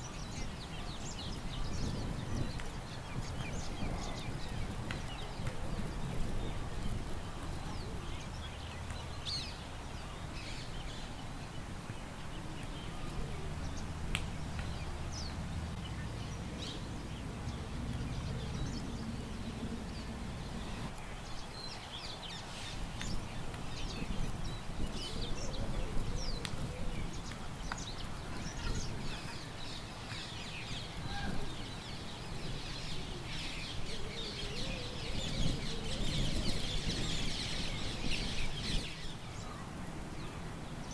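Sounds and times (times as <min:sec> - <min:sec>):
birds chirping and calling: 0:00.0 - 0:40.4
low wind rumble: 0:00.0 - 0:40.9.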